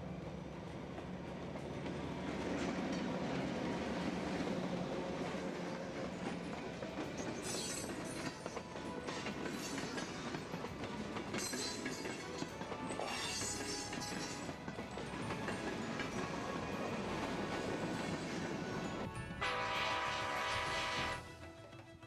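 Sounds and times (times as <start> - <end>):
diesel locomotive engine drone: 0.0 - 21.8
train wheels clicking over rails: 0.4 - 18.9.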